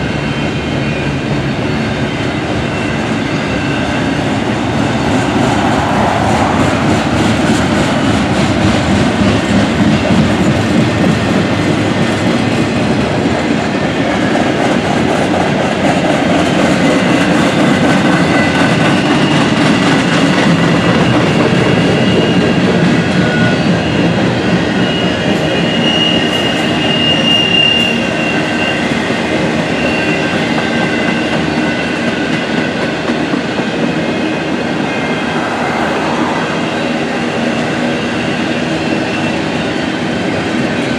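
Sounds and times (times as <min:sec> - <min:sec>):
train wheels rumbling on rails: 0:00.0 - 0:40.9
high wheel squeal: 0:02.0 - 0:09.8, 0:17.6 - 0:33.0, 0:33.8 - 0:39.8.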